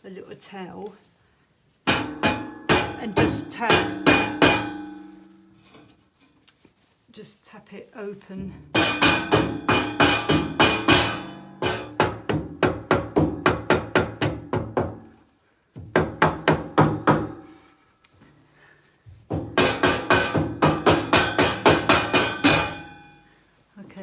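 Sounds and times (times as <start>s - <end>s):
hammer tapping on metal grille: 1.9s - 5.3s, 8.7s - 15.2s, 15.8s - 17.6s, 19.3s - 23.2s
metal grille ringing: 1.9s - 5.8s, 8.7s - 12.2s, 19.4s - 23.2s.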